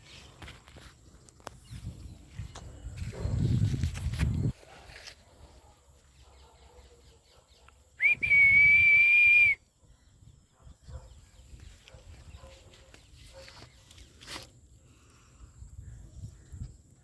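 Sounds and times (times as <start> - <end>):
high steady whistling tone: 8.0 - 9.7.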